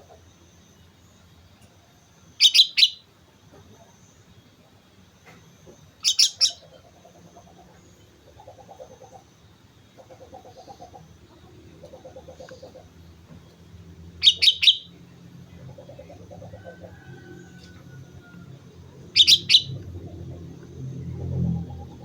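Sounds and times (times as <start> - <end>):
bird pulsing call: 2.4 - 3.1, 6.0 - 7.5, 14.2 - 17.6, 19.0 - 20.5.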